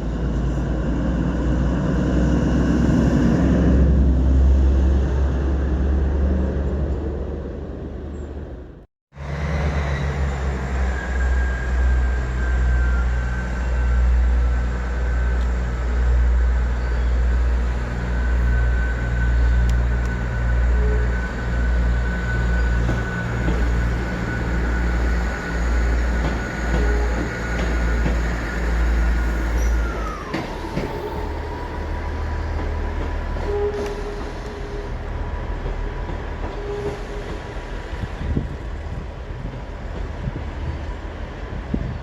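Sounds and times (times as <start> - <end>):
train rumbling by: 0.0 - 42.0
faint high squeal: 29.2 - 32.2.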